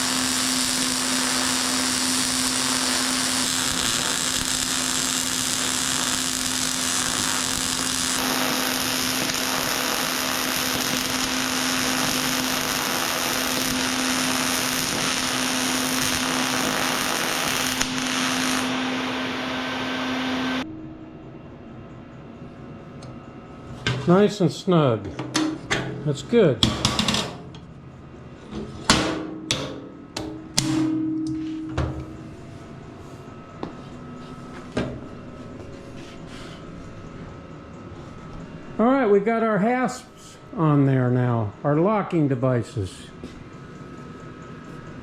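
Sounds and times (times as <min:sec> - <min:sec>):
electric power tool running: 0:00.0 - 0:20.6.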